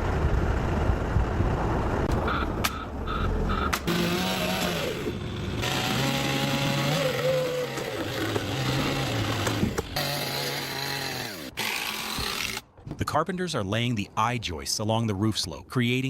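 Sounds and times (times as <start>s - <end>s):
small engine running: 3.5s - 12.6s.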